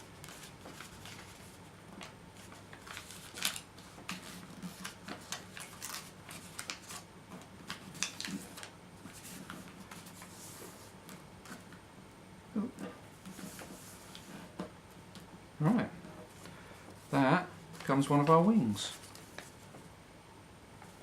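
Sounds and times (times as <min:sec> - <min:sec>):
paper crinkling and rustling: 0:00.0 - 0:11.8, 0:16.3 - 0:19.9.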